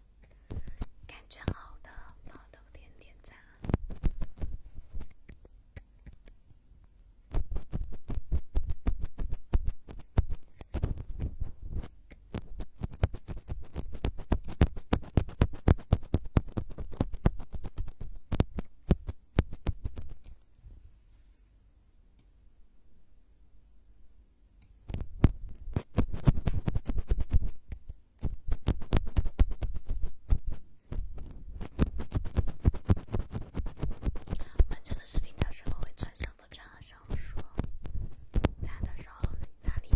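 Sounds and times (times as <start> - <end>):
scratching on microphone: 3.3 - 6.3, 7.3 - 20.2, 24.9 - 39.9.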